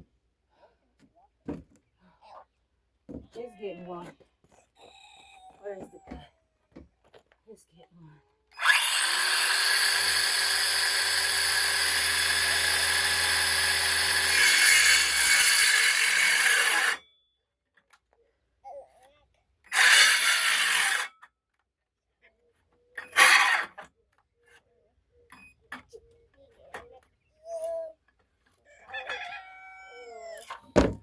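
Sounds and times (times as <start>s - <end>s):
power saw cutting wood: 8.6s - 17.0s, 19.7s - 21.1s, 23.1s - 23.8s.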